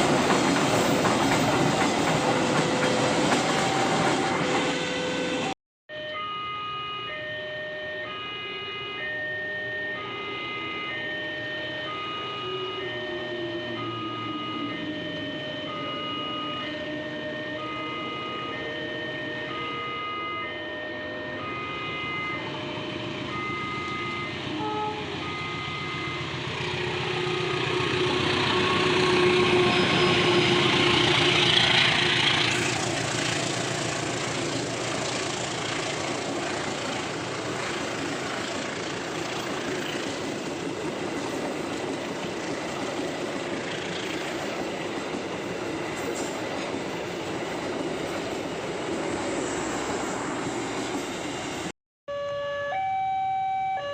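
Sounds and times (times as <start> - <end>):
train cars rolling past: 0.0 - 5.6, 22.4 - 51.7.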